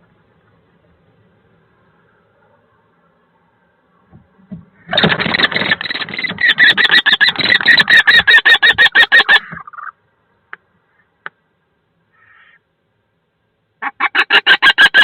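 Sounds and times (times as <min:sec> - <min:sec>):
kestrel shrill alarm calls: 0:04.8 - 0:09.9, 0:12.1 - 0:12.6.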